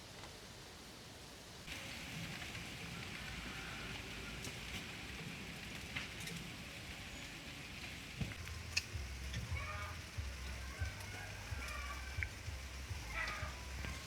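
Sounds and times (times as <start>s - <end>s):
steady hiss: 0.0s - 14.0s
sharp clicks and crackles: 8.2s - 14.0s.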